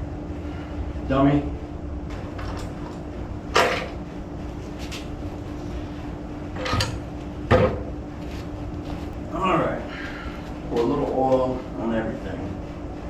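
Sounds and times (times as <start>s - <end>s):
steady low hum: 0.0s - 13.0s
objects knocking and clattering: 2.1s - 4.0s, 6.6s - 7.9s.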